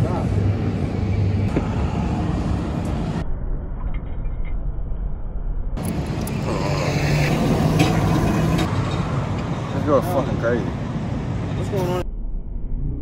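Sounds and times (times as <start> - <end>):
road traffic rumbling past: 0.0 - 3.3, 5.8 - 12.0.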